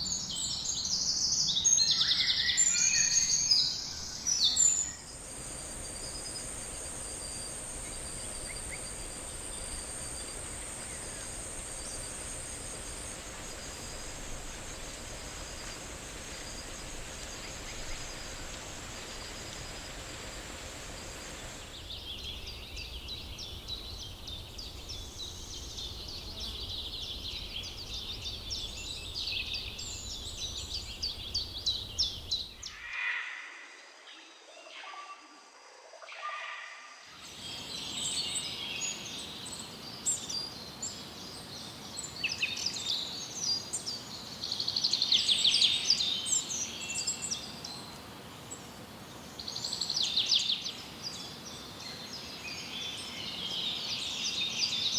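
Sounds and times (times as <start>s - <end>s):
insects and birds chirping: 0.0s - 54.9s
high-pitched insect drone: 2.5s - 33.2s.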